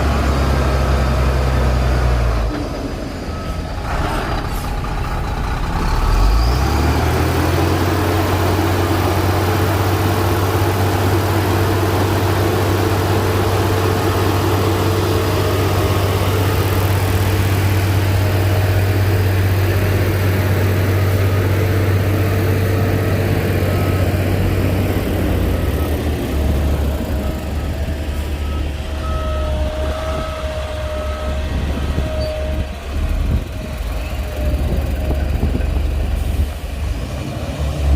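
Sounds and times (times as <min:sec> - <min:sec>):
heavy diesel engine running: 0:00.0 - 0:37.9
faint reversing beeps: 0:03.0 - 0:03.9, 0:20.9 - 0:35.9.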